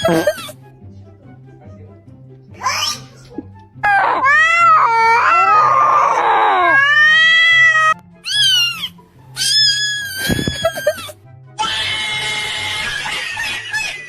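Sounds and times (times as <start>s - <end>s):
background music: 0.0s - 14.0s
cat meowing: 2.6s - 12.8s.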